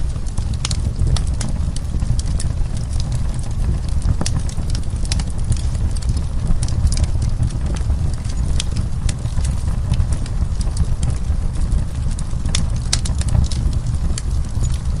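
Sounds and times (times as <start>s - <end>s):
low rumble of burning logs: 0.0s - 15.0s
wood fire crackling: 0.0s - 15.0s.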